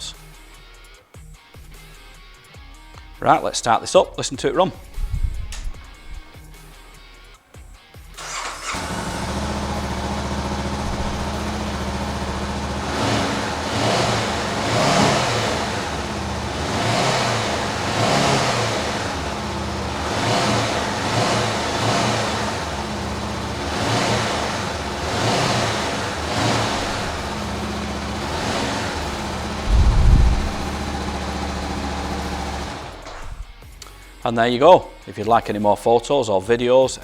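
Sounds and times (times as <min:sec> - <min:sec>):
motorcycle engine starting and revving: 0:08.2 - 0:33.6.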